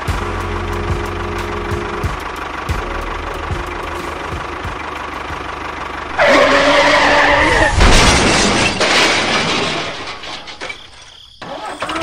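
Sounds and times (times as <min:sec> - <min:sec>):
loud screech: 0:06.1 - 0:08.9.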